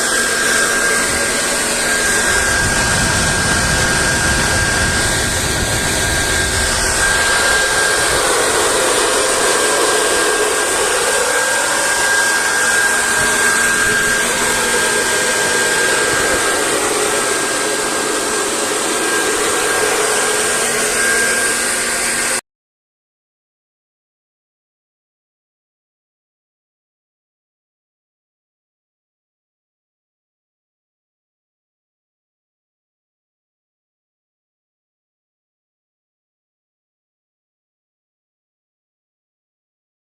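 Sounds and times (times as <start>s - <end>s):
fan air rush with high whine: 0.0s - 22.4s.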